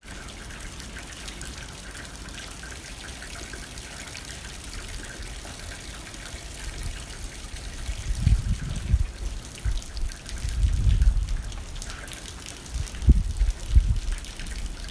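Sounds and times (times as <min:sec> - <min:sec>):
rain hitting a window: 0:00.0 - 0:14.9
low wind gusts rumbling: 0:06.6 - 0:12.0, 0:12.6 - 0:14.9.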